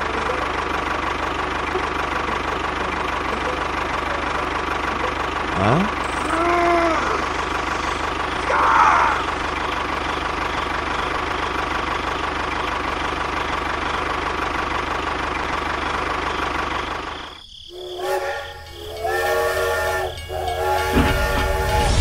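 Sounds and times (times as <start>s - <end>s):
steam locomotive chime whistle: 17.7s - 22.0s.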